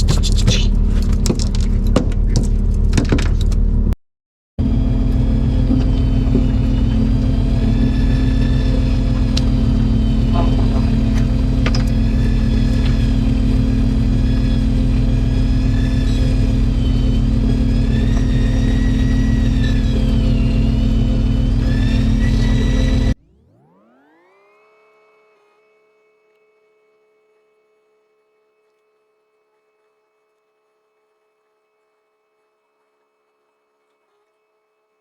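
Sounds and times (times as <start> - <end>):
boat engine running: 0.0 - 4.0, 4.6 - 24.4
electric reel motor whining: 4.6 - 34.9.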